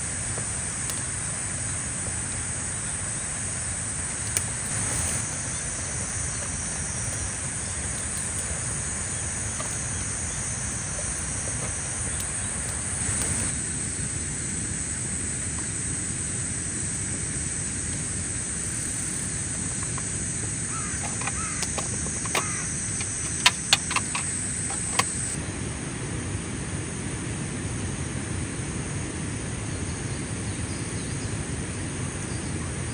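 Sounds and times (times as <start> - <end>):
insects droning: 0.0 - 32.9
low outdoor rumble: 0.0 - 32.9
sharp clicks and knocks: 4.2 - 13.5, 20.7 - 25.4.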